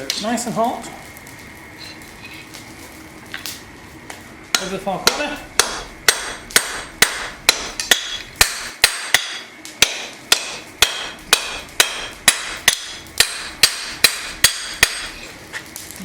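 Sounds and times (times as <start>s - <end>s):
hammer striking steel on anvil: 4.5s - 15.2s.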